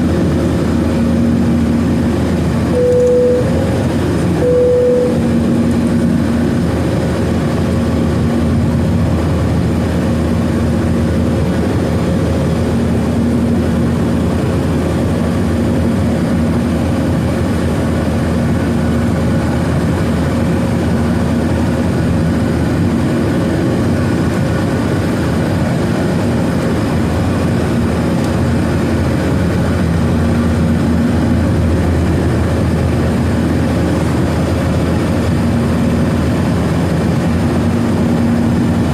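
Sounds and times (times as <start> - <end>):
faint steady hum: 0.0 - 6.4
jet engine and airflow rush: 0.0 - 38.9.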